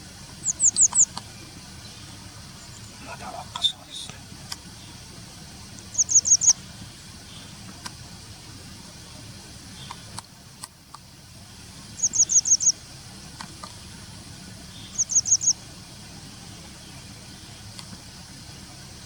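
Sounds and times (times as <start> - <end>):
bird high thin chirps: 0.4 - 1.3, 5.9 - 6.6, 12.0 - 12.8, 14.8 - 15.6.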